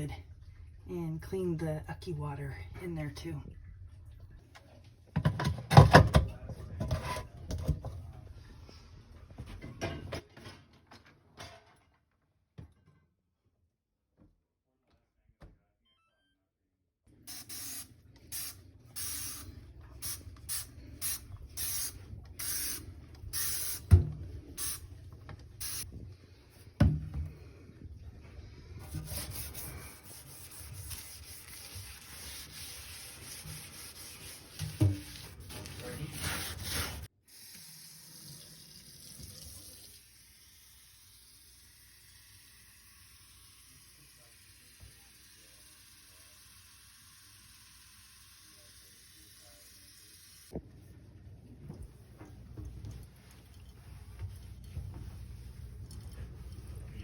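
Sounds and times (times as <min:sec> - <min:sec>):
hand scrubbing a surface: 0:27.4 - 0:37.1, 0:52.0 - 0:57.0.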